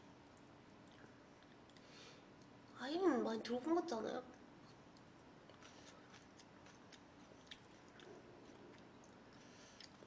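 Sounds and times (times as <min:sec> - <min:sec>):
chewing food: 0:04.7 - 0:10.0.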